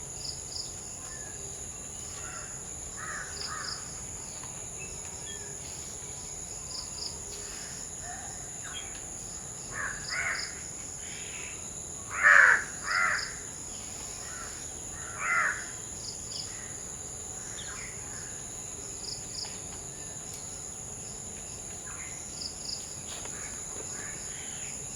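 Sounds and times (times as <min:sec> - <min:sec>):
high insect drone: 0:00.0 - 0:24.9
crows cawing: 0:02.2 - 0:03.8, 0:09.7 - 0:10.6, 0:12.1 - 0:13.4, 0:14.2 - 0:15.7.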